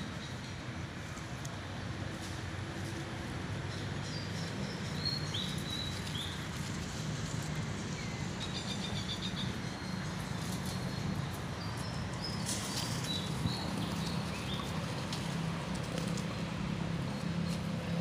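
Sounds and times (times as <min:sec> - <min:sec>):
small birds chirping: 0:07.8 - 0:15.1.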